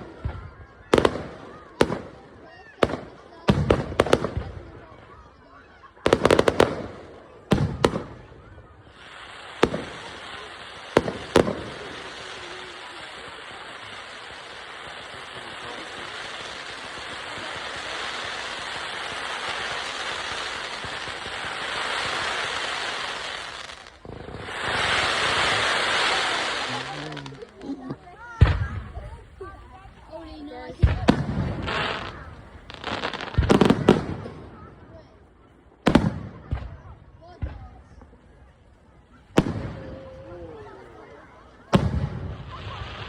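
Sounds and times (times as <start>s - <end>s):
crackling hiss of fireworks: 0.0s - 43.0s
fireworks bangs: 0.0s - 43.0s.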